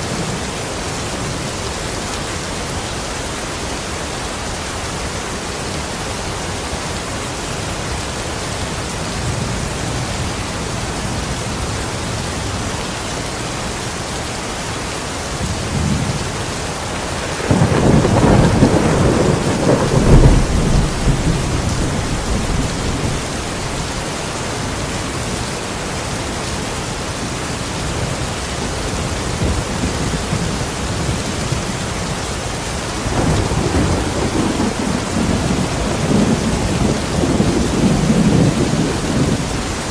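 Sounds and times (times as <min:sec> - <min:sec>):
steady rain: 0:00.0 - 0:39.9
thunder rumbling: 0:15.4 - 0:25.1, 0:32.7 - 0:39.9.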